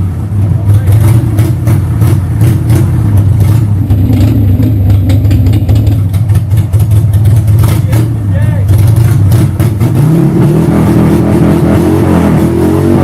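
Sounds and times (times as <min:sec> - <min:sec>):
motorcycle engine idling: 0:00.2 - 0:09.1.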